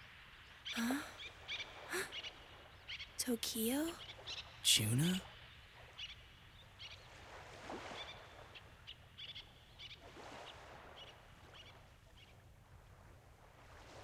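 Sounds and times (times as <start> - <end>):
small birds chirping: 0.4 - 7.2.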